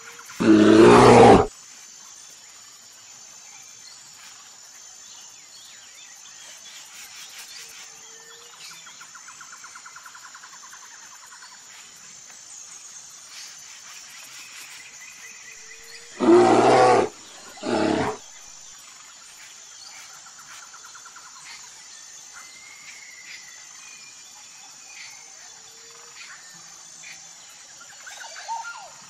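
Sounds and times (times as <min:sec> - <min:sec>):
insects and birds chirping: 0:00.0 - 0:29.0
bear growling: 0:00.4 - 0:01.5, 0:16.1 - 0:18.4.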